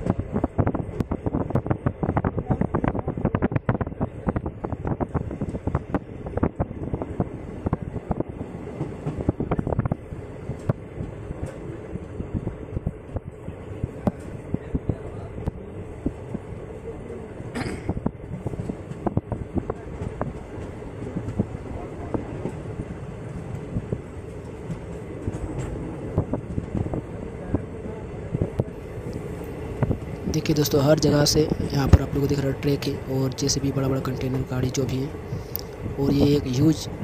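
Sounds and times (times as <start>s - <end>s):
train wheels clattering over rails: 0.0s - 13.2s, 17.5s - 32.5s
train rumble: 0.0s - 37.0s.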